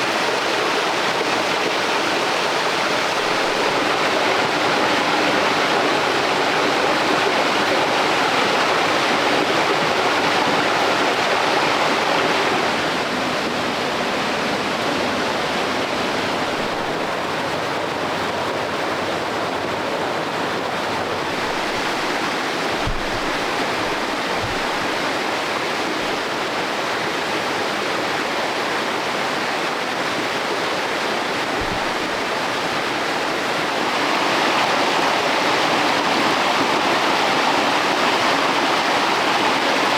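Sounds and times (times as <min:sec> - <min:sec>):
stream water rushing over rocks: 0:00.0 - 0:39.9
faint low thuds: 0:16.4 - 0:17.2, 0:21.2 - 0:26.2, 0:31.5 - 0:32.3.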